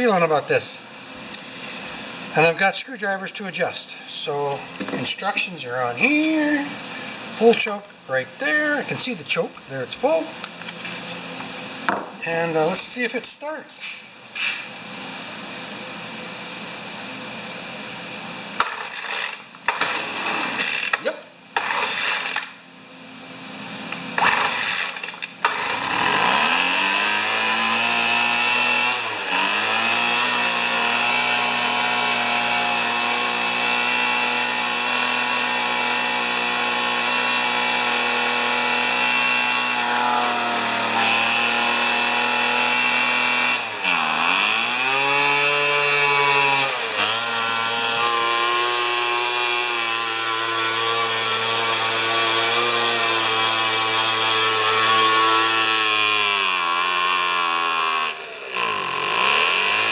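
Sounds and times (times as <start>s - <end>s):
leaf blower engine sputtering and revving: 3.4s - 7.7s, 18.6s - 22.6s, 24.0s - 59.9s.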